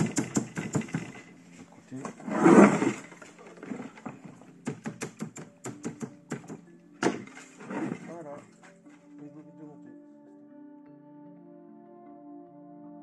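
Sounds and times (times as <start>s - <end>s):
rapid sharp taps: 4.7s - 6.6s.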